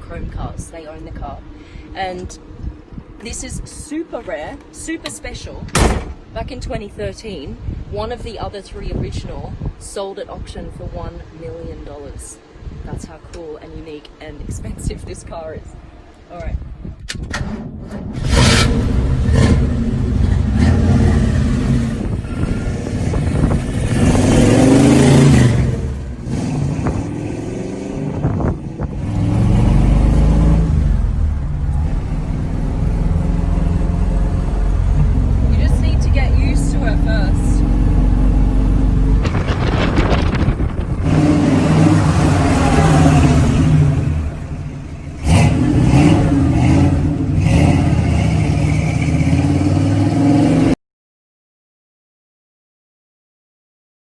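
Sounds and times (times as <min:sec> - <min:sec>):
car engine revving: 0:17.9 - 0:50.8.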